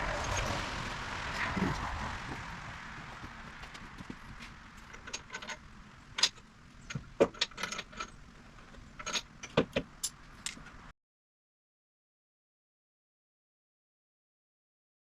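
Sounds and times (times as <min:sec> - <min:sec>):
metal tools clinking: 0:04.8 - 0:10.6.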